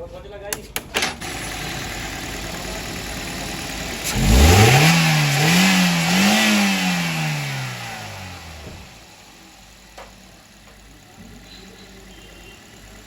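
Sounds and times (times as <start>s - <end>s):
car engine revving: 1.3s - 9.8s.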